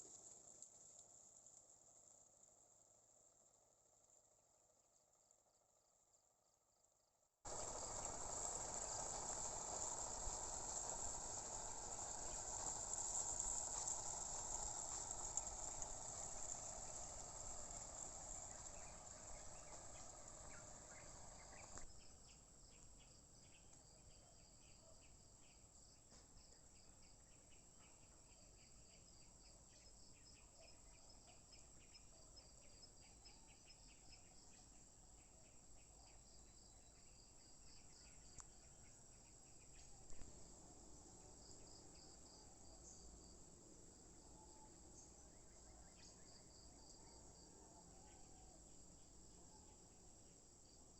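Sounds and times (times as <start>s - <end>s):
loud wide hiss: 7.5s - 21.8s
insects chirring: 7.5s - 50.9s.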